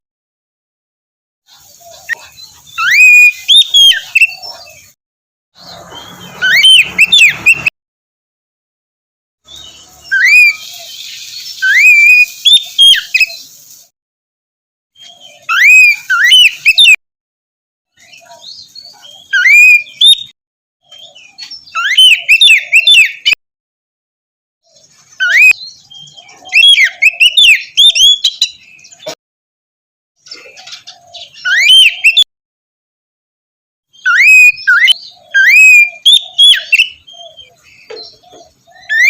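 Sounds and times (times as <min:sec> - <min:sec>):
bird singing whistled phrases: 0:02.0 - 0:04.9, 0:05.7 - 0:07.7, 0:09.5 - 0:13.5, 0:15.0 - 0:17.0, 0:18.0 - 0:20.3, 0:20.9 - 0:23.4, 0:25.2 - 0:29.1, 0:31.2 - 0:32.3, 0:34.0 - 0:39.0.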